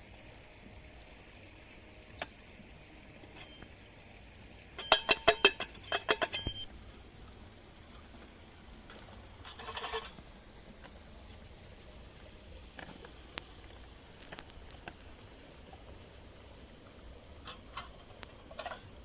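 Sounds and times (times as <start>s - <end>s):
kitchenware clinking: 4.8s - 6.6s.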